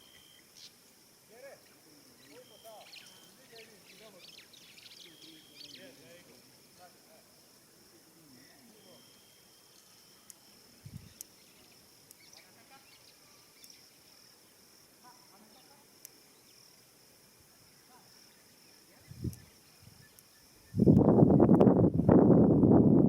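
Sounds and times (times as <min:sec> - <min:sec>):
faint distant calls: 0:00.0 - 0:20.9
high-pitched insect drone: 0:00.0 - 0:22.4
small ticks: 0:09.1 - 0:13.9, 0:15.6 - 0:16.2, 0:19.2 - 0:21.7.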